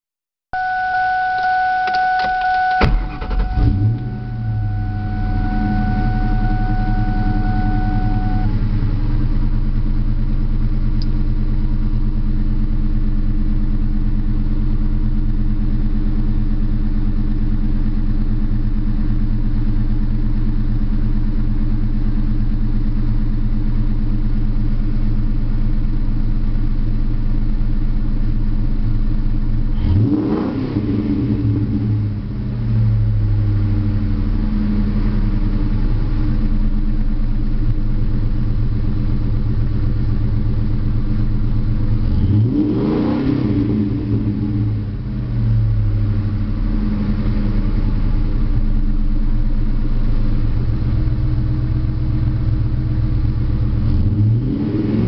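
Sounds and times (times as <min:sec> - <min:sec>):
car engine starting and idling: 0:00.6 - 0:55.0
starter whine: 0:00.6 - 0:55.0
click: 0:01.4 - 0:02.9, 0:11.0 - 0:11.2.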